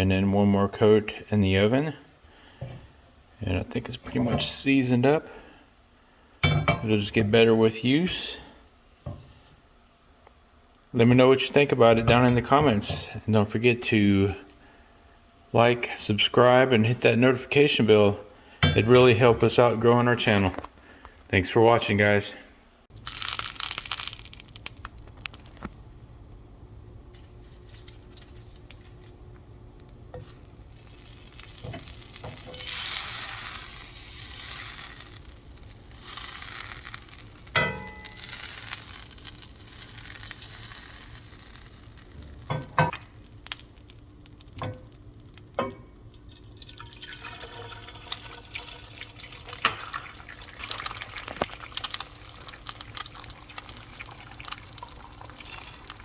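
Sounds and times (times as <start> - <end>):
kitchen knocks and clinks: 6.4 - 6.9, 18.6 - 18.9, 37.6 - 38.2, 42.5 - 43.0, 45.6 - 46.0
hiss of water or frying: 22.9 - 25.7, 30.2 - 45.4, 46.2 - 56.0.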